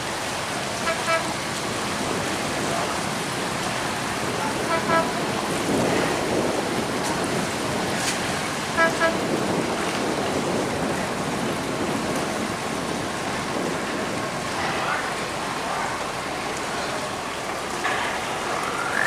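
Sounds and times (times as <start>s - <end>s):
rushing water or rain: 0.0s - 19.0s
boat horn toots: 0.6s - 1.6s, 4.3s - 5.7s, 8.6s - 9.6s.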